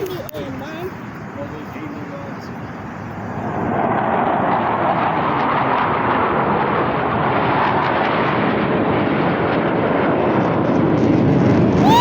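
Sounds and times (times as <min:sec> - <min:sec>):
airplane roaring overhead: 0:00.0 - 0:12.0.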